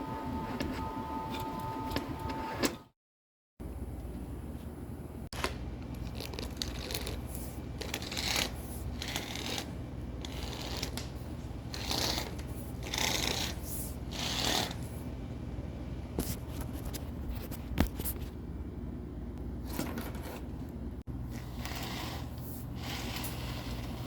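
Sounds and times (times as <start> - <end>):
steady low hum: 3.6 - 24.0
camera cable scraping through duct: 6.2 - 11.1, 21.4 - 24.0.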